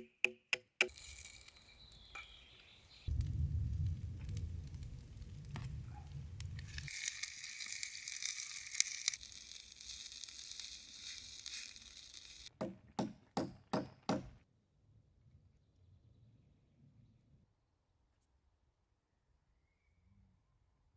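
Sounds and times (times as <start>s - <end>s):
food sizzling in a pan: 0.9s - 12.6s
sharp knocks: 12.5s - 14.4s.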